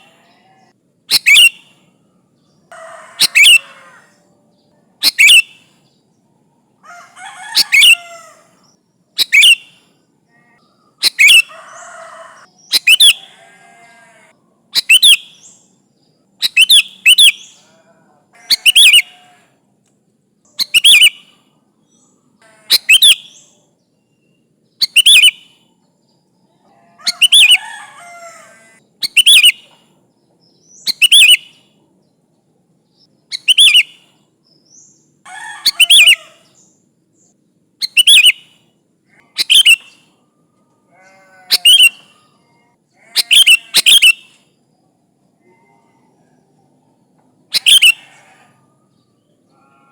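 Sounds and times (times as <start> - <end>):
bulbul sharp calls: 0.0 - 1.9, 2.7 - 4.2, 5.0 - 5.8, 6.9 - 15.7, 16.4 - 19.4, 20.5 - 23.7, 24.8 - 25.7, 26.8 - 30.0, 30.6 - 31.8, 33.3 - 36.8, 37.8 - 40.2, 40.8 - 44.5, 47.5 - 49.9.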